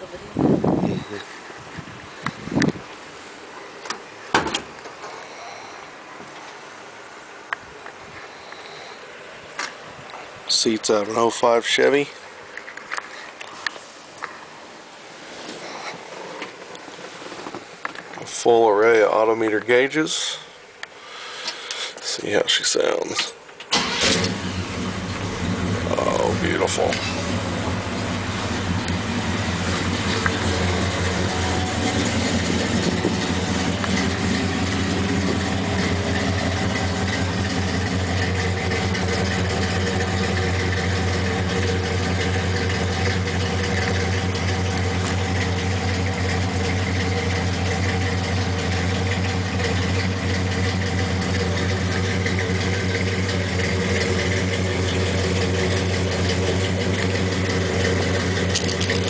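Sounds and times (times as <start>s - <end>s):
truck engine idling: 23.7s - 59.0s.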